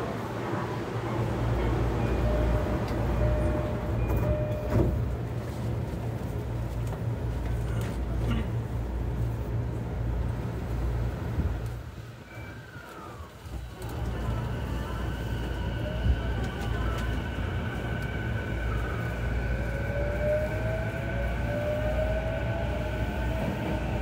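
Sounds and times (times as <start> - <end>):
train running rumble: 13.0 - 24.0.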